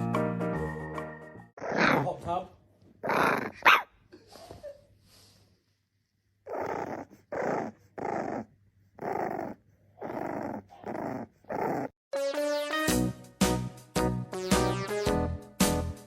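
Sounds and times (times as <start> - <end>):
dog growling: 1.6 - 2.2, 3.0 - 3.7, 6.4 - 12.0.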